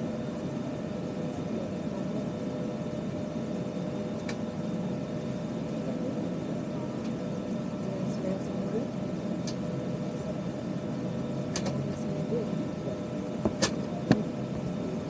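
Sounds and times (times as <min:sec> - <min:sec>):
cabin ventilation hum: 0:11.4 - 0:15.0.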